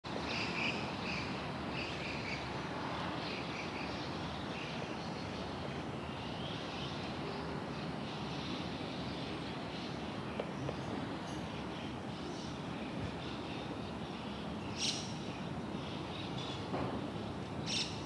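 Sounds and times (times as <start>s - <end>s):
wild birds calling: 5.5s - 18.0s.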